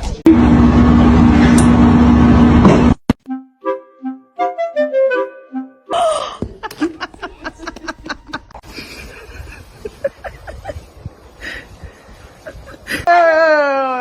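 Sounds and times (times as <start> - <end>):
person snickering: 5.9 - 10.9.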